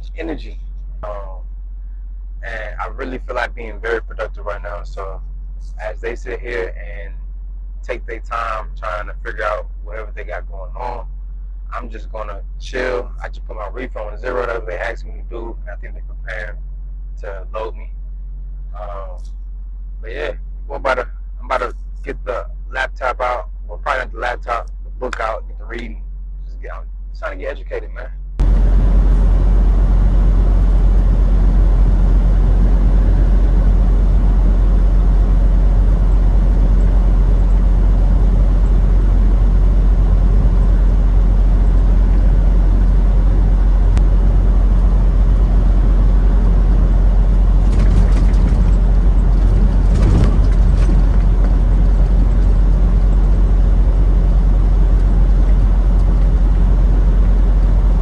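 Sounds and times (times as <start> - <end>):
semi truck running: 0.0 - 1.4, 2.5 - 6.8, 11.7 - 16.4, 20.0 - 58.0
brief clatters: 47.5 - 53.6.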